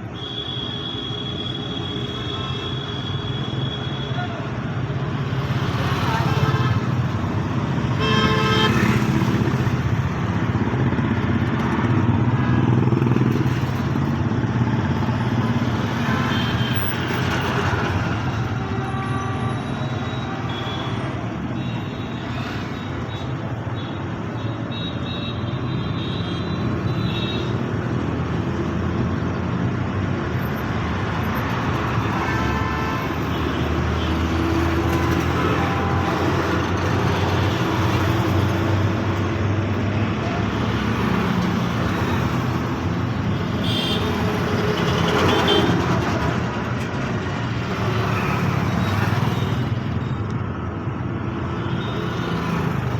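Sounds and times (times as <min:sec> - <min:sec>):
heavy road traffic: 0:00.0 - 0:52.9
car horns honking: 0:07.9 - 0:09.1.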